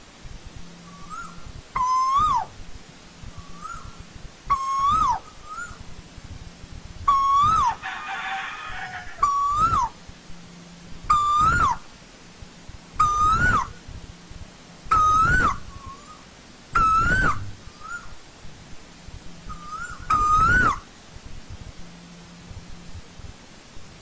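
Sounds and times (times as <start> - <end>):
koel calling: 0.8 - 2.6, 3.4 - 5.8, 7.1 - 10.0, 11.1 - 11.9, 13.0 - 13.8, 14.9 - 18.1, 19.5 - 20.8.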